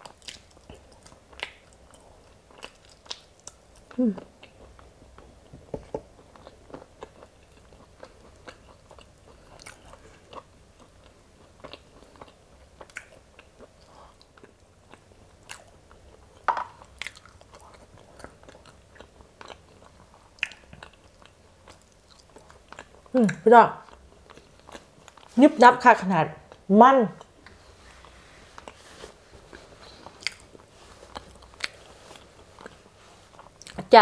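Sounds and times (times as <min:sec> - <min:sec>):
chewing beans: 0:00.0 - 0:05.5, 0:06.2 - 0:25.4, 0:29.5 - 0:33.9
wet mouth clicks and smacks: 0:20.4 - 0:20.7.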